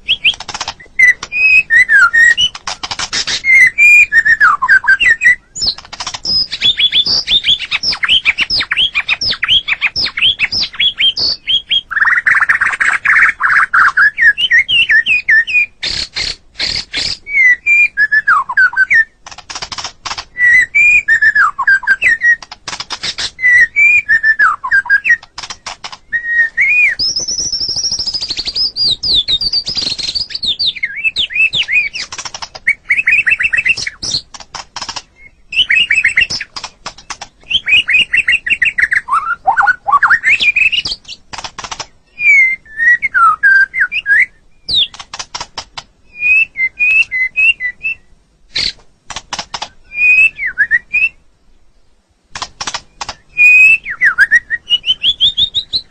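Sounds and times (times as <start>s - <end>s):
shama singing whistled phrases: 0.0s - 16.0s, 17.1s - 19.2s, 20.4s - 22.4s, 23.4s - 25.3s, 26.0s - 32.0s, 32.7s - 34.2s, 35.2s - 36.5s, 37.4s - 41.0s, 42.1s - 44.9s, 46.1s - 48.8s, 49.8s - 51.2s, 53.1s - 55.9s.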